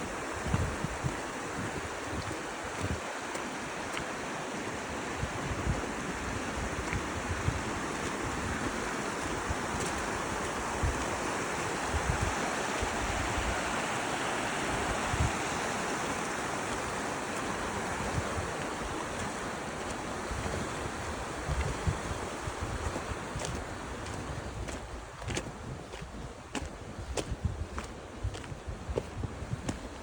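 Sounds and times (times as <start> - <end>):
gusts buffeting microphone: 0.0 - 3.1, 5.2 - 30.0
wind noise: 0.0 - 3.1, 4.8 - 30.0.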